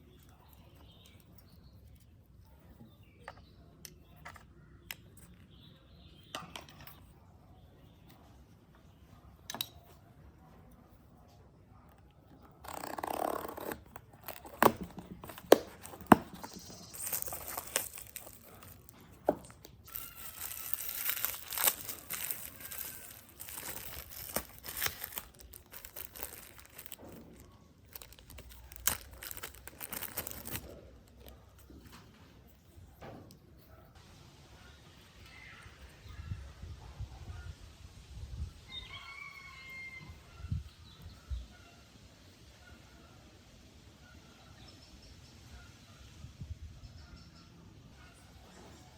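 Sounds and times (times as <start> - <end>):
plastic parts clicking: 12.6 - 31.3
hands rustling plastic parts: 12.6 - 32.8.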